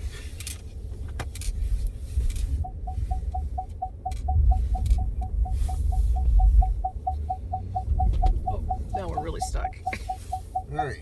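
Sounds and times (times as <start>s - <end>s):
truck engine rumbling: 0.0s - 11.0s
dashboard warning chime: 2.6s - 11.0s.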